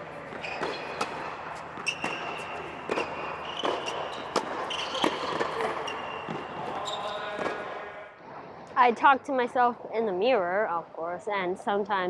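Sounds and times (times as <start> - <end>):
sneakers squeaking on court: 0.0 - 7.7
tennis balls struck and bouncing: 0.0 - 7.8.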